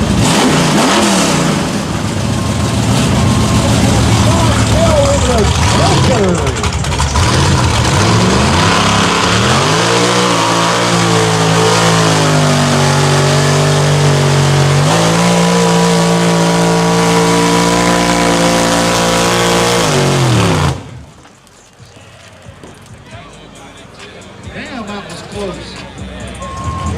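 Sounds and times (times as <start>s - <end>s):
truck engine revving: 0.0s - 21.2s.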